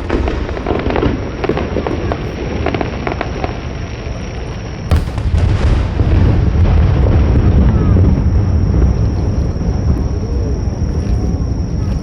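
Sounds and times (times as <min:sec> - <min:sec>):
firework shell boom: 0:04.9 - 0:06.9
low rolling rumble: 0:04.9 - 0:11.8.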